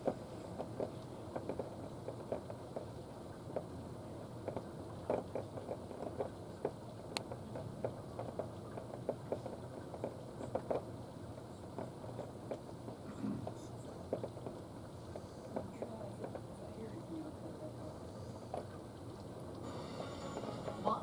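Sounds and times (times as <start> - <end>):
rain dripping and pattering: 0.0 - 21.0
steady low hiss: 10.9 - 21.0.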